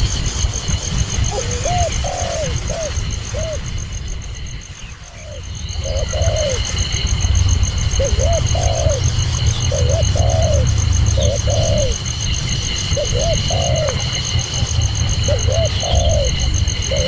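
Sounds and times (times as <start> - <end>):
dove cooing: 0.6 - 17.0.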